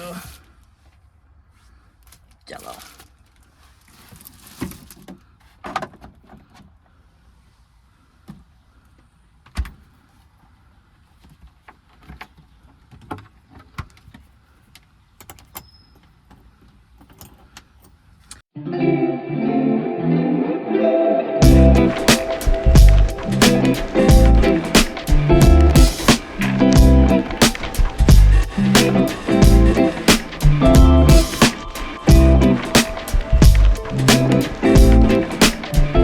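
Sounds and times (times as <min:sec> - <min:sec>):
plucked guitar music: 0:18.6 - 0:36.0.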